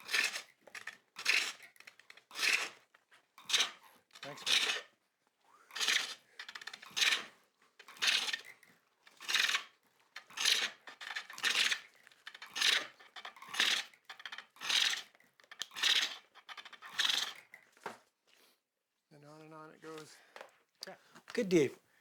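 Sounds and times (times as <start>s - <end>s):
chisel scraping wood on lathe: 3.4s - 4.8s, 5.8s - 7.3s, 10.2s - 17.5s.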